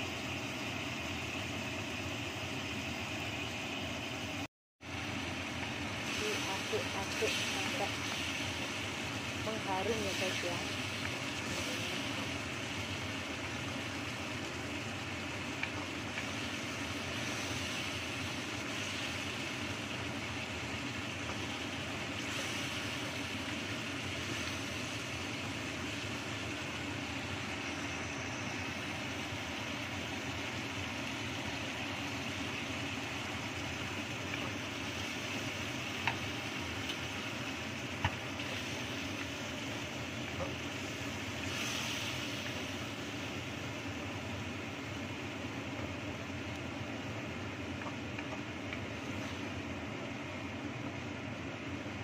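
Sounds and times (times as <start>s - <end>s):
spice paste sizzling in oil: 0.0s - 52.0s
spatula tapping a pan: 36.0s - 36.3s.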